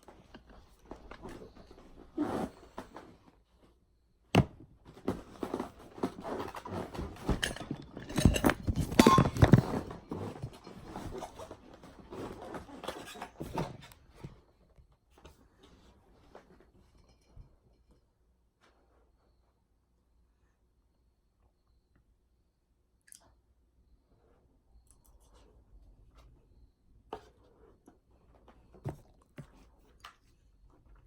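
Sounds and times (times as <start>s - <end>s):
clinks and scrapes: 5.0s - 14.4s, 15.2s - 19.4s.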